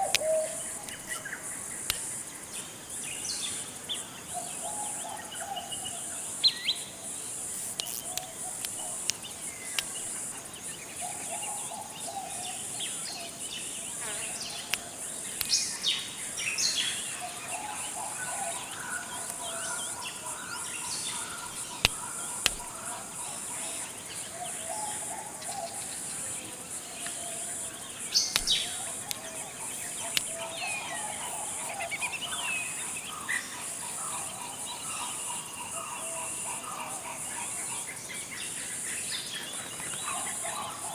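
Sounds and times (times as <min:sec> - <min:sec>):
sharp clicks: 0:00.0 - 0:02.2, 0:07.5 - 0:10.4, 0:21.0 - 0:22.9, 0:28.2 - 0:30.4
bird calls: 0:00.0 - 0:02.3, 0:07.4 - 0:40.9
high insect chorus: 0:00.0 - 0:40.9.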